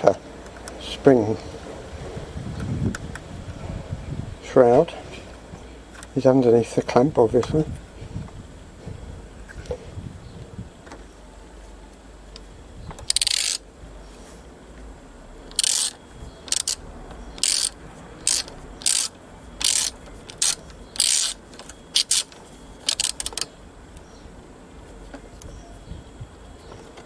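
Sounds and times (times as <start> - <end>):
hand ratchet clicking: 13.0 - 13.6, 15.5 - 23.5.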